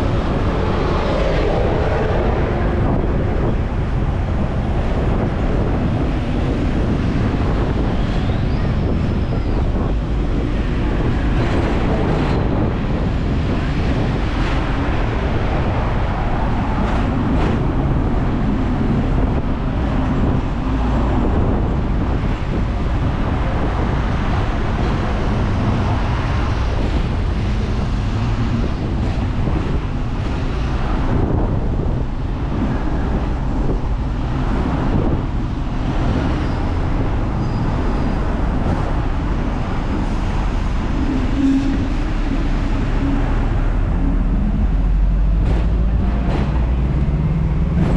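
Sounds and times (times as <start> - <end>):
road traffic: 0.0 - 47.9
tram rumbling on rails: 0.0 - 47.9
wind buffeting microphone: 0.0 - 47.9.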